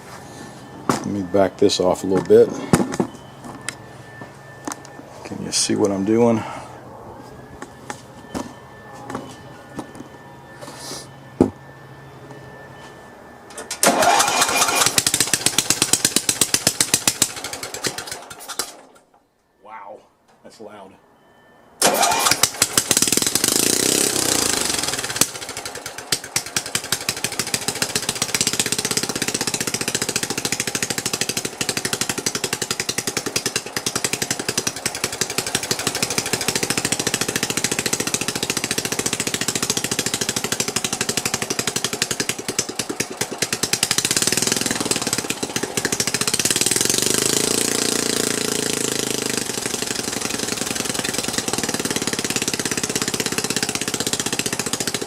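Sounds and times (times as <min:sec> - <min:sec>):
lawn tractor engine running loud: 0:13.5 - 0:18.9, 0:21.8 - 0:55.0.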